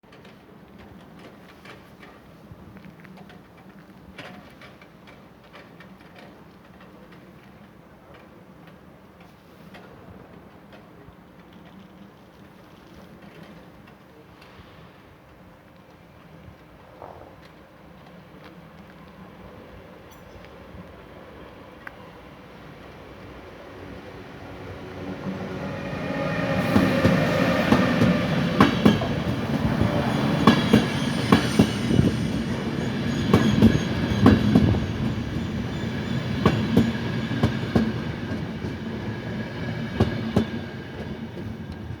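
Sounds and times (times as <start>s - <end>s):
train passing rumble: 18.8s - 42.0s.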